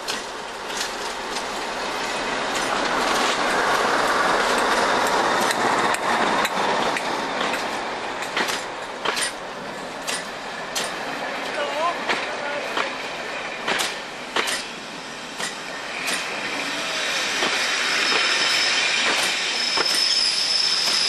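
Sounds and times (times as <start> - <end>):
wheels clicking over rail joints: 0.0 - 13.0, 13.6 - 14.8
train coaches rumbling past: 0.0 - 21.0.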